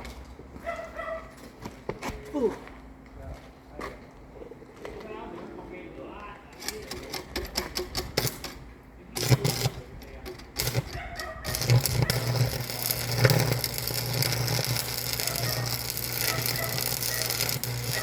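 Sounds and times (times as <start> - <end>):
mechanical clicking and knocking: 6.6 - 8.6
machine humming: 10.4 - 18.0.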